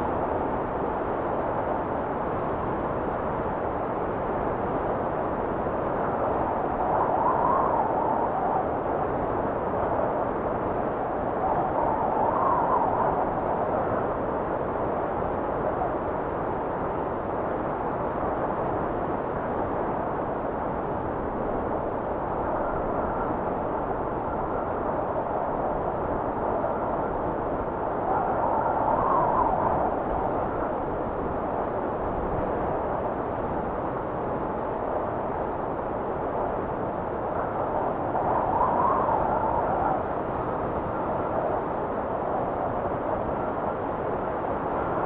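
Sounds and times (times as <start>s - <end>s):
wind blowing: 5.4s - 16.2s, 18.0s - 45.0s
soft wind whistle: 22.4s - 32.8s, 37.3s - 43.8s.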